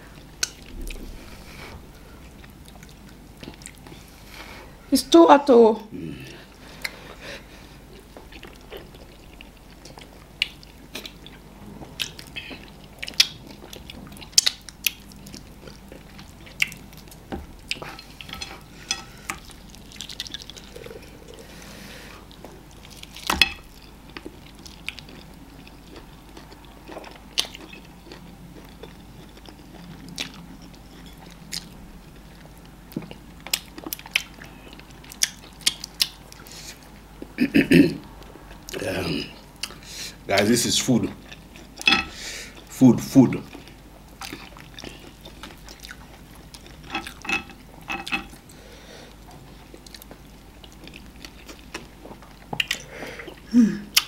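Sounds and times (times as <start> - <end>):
wet chewing and mouth smacks: 7.9 - 18.4, 19.0 - 21.4, 22.3 - 37.4, 39.6 - 39.8, 43.5 - 48.4, 49.2 - 54.0.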